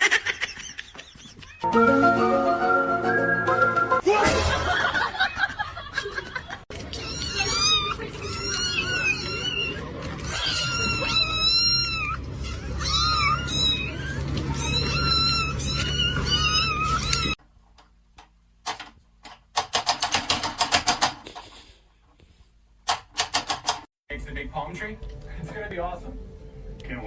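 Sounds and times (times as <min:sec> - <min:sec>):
cat meowing: 0:06.9 - 0:17.4.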